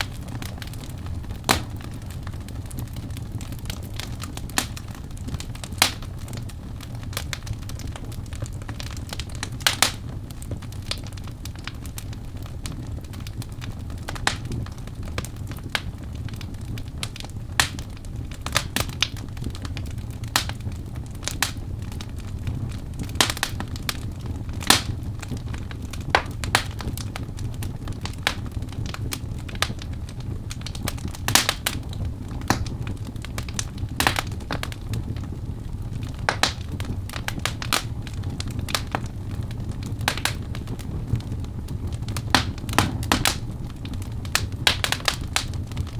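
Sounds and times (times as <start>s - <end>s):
logs crackling and popping: 0.0s - 45.9s
low rumble of flames: 0.0s - 45.9s.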